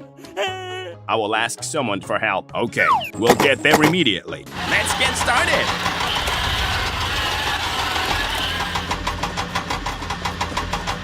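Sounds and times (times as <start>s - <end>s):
vehicle engine chugging: 4.5s - 11.0s.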